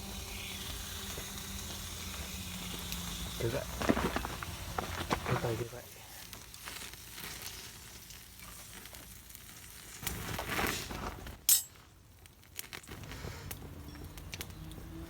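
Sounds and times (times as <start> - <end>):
steak sizzling on griddle: 0.0 - 13.4
loud metallic clink: 11.5 - 11.8.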